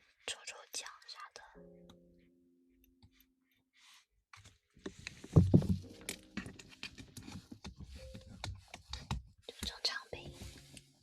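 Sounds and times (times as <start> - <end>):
rustling and crackling: 4.4 - 11.0.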